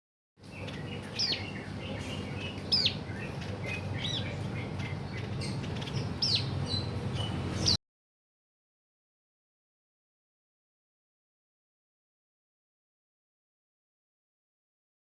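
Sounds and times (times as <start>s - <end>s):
bird chirping: 0.4s - 7.8s
low background noise: 0.4s - 7.8s.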